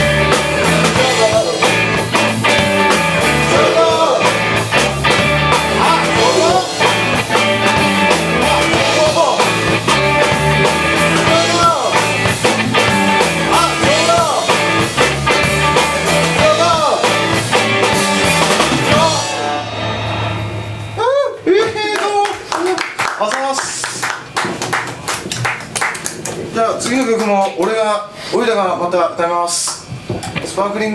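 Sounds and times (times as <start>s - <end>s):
sliding lead guitar notes: 0.0s - 21.3s
live rock band playing: 0.0s - 22.6s.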